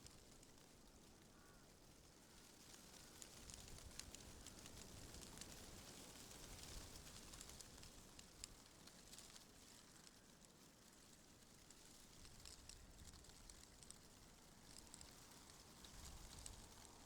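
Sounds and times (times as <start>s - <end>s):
faint wind rustling leaves: 0.0s - 17.0s
tiny leaf ticks: 0.0s - 17.0s.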